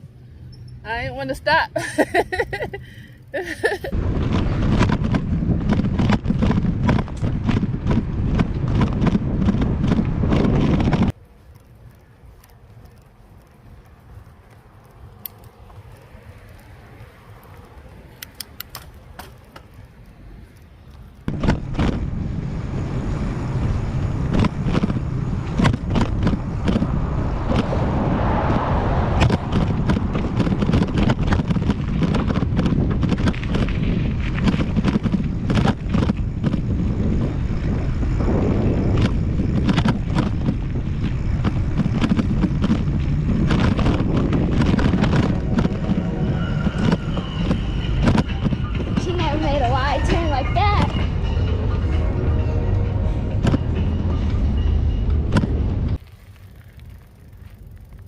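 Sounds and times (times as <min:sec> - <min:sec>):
wind rumbling on microphone: 0:00.0 - 0:58.0
bicycle clicks and rattles: 0:02.0 - 0:22.0, 0:24.2 - 0:27.7, 0:29.2 - 0:45.9, 0:55.3 - 0:58.0.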